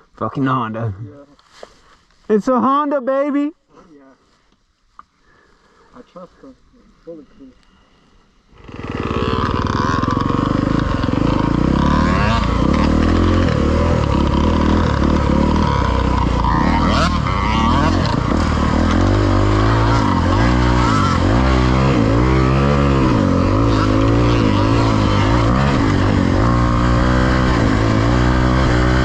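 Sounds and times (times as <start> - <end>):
dirt bike engine revving: 8.5 - 29.0.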